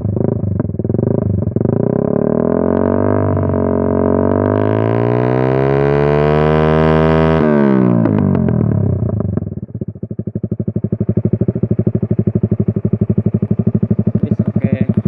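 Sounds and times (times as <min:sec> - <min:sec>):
motorcycle idling: 0:00.0 - 0:04.4, 0:08.0 - 0:15.0
motorcycle engine revving: 0:00.0 - 0:15.0
exhaust crackling pops: 0:12.8 - 0:15.0.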